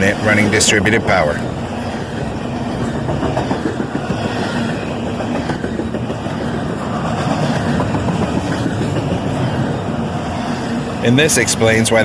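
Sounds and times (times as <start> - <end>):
wheels rumbling on rail: 0.0 - 12.0.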